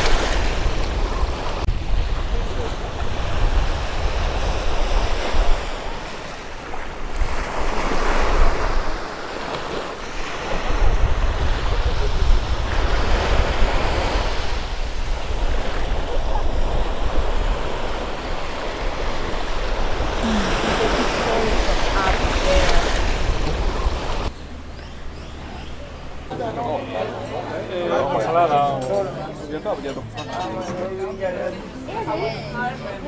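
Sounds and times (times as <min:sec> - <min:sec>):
wind buffeting microphone: 0:00.0 - 0:26.3
sea waves washing: 0:00.0 - 0:33.0.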